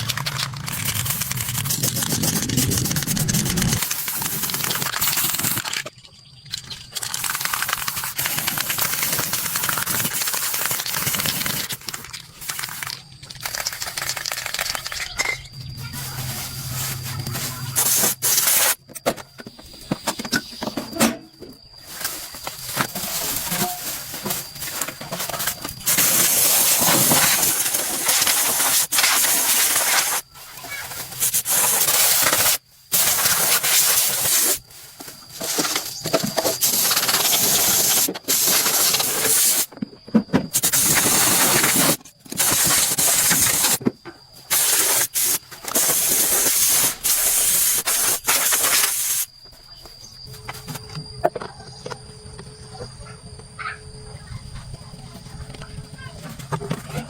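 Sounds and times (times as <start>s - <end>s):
pressurized spray hissing: 44.5s - 49.3s.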